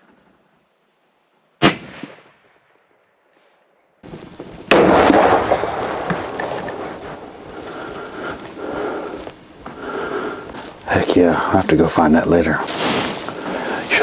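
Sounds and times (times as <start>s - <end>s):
gunshots: 4.7s - 6.4s.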